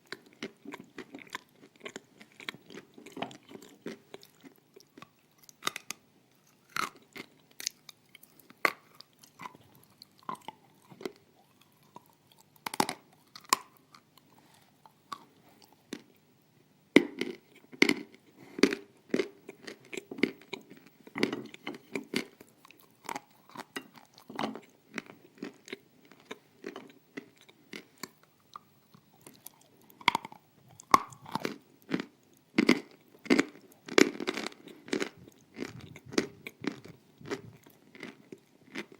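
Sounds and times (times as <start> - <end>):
crunching and chewing clay: 0.0 - 16.2, 17.0 - 38.9.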